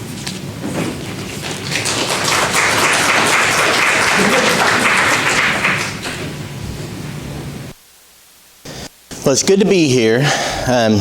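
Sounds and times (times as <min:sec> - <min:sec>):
crowd clapping: 0:01.4 - 0:06.3.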